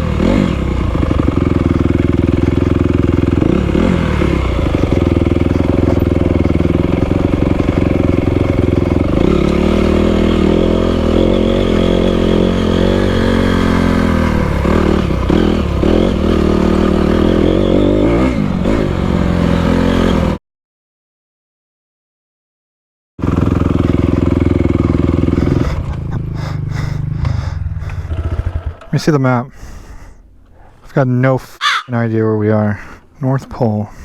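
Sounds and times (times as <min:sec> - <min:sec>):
dirt bike engine revving: 0:00.0 - 0:20.4, 0:23.2 - 0:29.2.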